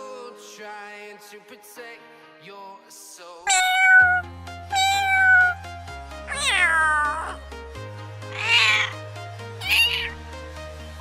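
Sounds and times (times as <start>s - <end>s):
background music of sustained chords: 0.0s - 3.4s, 4.1s - 11.0s
cat meowing: 3.5s - 5.6s, 6.3s - 7.4s, 8.3s - 9.0s, 9.6s - 10.2s.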